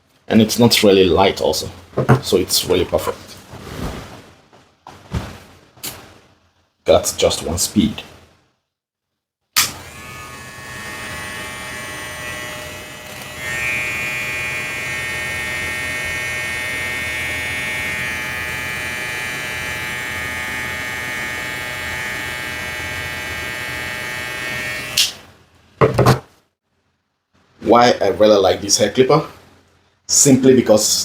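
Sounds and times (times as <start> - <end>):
hair clipper motor hum: 9.6 - 25.1.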